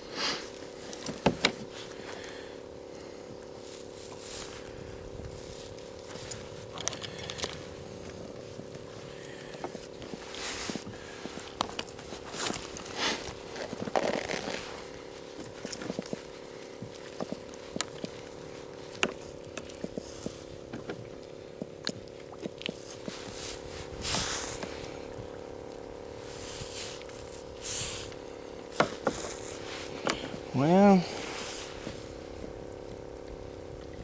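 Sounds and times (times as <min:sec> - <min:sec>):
faint steady hum: 0:00.0 - 0:34.0
clicks taps and scrapes: 0:28.1 - 0:30.4.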